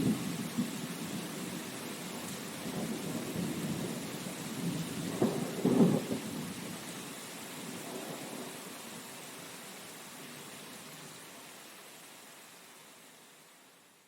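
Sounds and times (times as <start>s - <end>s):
rain hiss: 0.0s - 14.0s
rumbling thunder: 4.6s - 6.6s.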